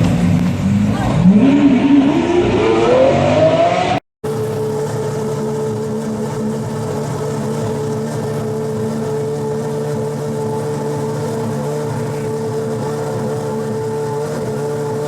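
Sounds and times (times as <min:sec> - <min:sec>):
car engine revving: 0:00.0 - 0:15.0
car engine idling: 0:04.2 - 0:15.0.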